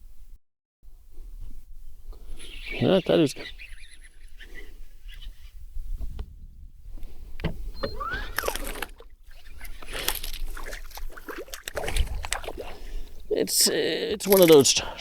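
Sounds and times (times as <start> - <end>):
knocks and clicks in boat: 5.9 - 14.8
rising squeak: 7.7 - 8.9
splashy rustles: 7.8 - 15.0.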